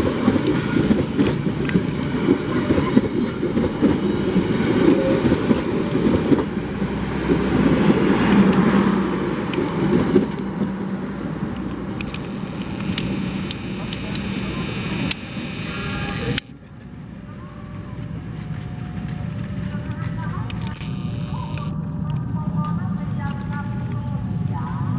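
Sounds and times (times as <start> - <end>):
train wheels clattering over rails: 0.0 - 14.8
steady low hum: 11.0 - 24.9.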